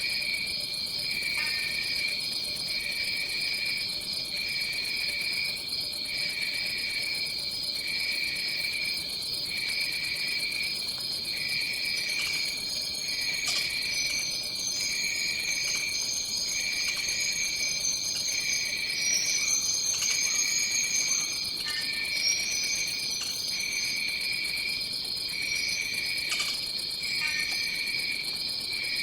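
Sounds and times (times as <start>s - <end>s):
pulsing lower insect trill: 0.2s - 26.4s
higher-pitched insect call: 11.3s - 24.4s.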